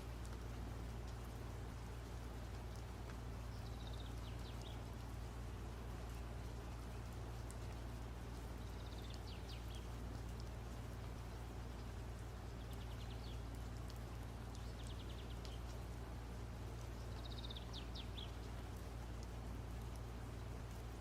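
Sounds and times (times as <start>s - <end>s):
faint bird chirping: 3.4s - 7.7s, 8.4s - 10.4s, 11.1s - 16.0s, 16.7s - 19.9s.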